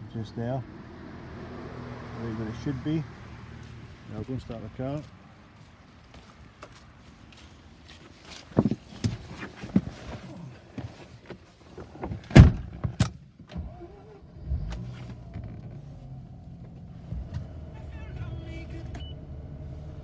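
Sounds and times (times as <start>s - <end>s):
car door slam: 12.3s - 13.1s
rotary engine starting and idling: 13.5s - 20.0s.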